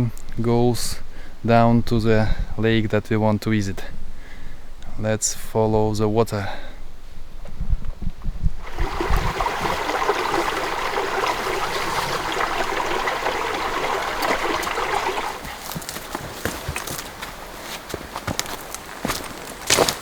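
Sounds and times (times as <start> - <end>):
stream babbling over stones: 8.6 - 16.1.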